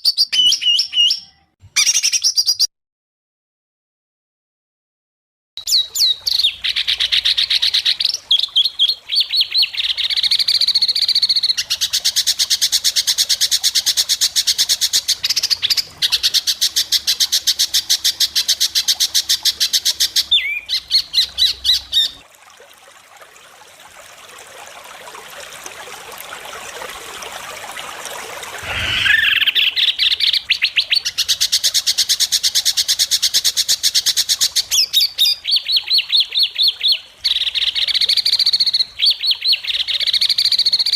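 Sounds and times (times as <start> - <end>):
bird singing rapid sharp notes: 28.6 - 30.4.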